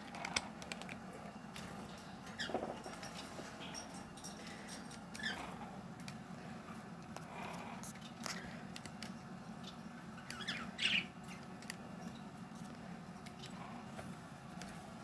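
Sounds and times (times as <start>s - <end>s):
bird squawk: 10.3s - 11.1s.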